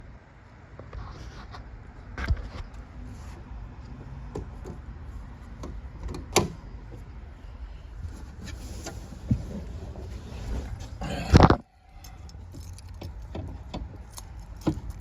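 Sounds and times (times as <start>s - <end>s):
sharp clicks and knocks: 12.2s - 15.0s.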